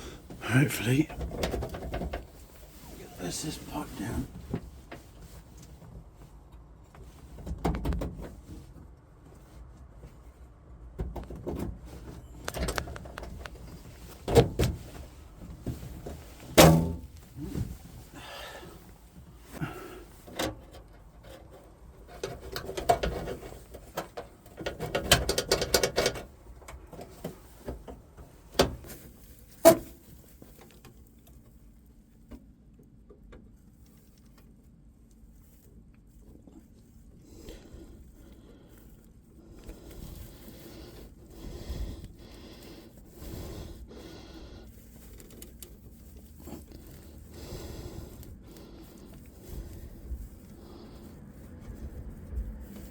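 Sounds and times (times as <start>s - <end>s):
knocks and clunks on pipework: 1.2s - 2.4s, 10.9s - 11.9s, 20.3s - 29.0s.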